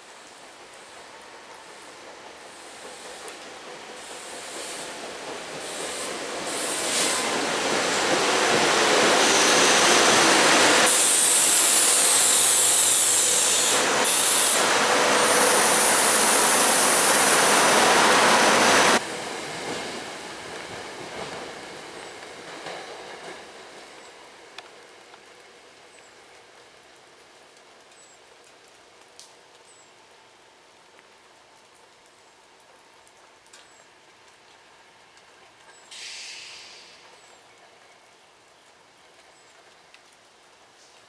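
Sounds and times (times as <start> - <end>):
high hiss: 0.0 - 20.3, 35.9 - 37.2
train wheels rumbling on rails: 0.2 - 25.6.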